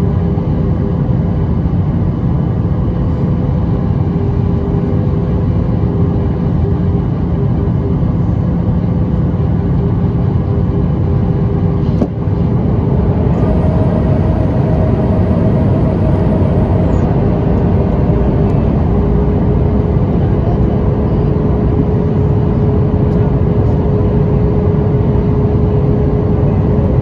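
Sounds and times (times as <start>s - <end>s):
aircraft cabin engine drone: 0.0s - 27.0s
faint high whine: 11.9s - 22.3s.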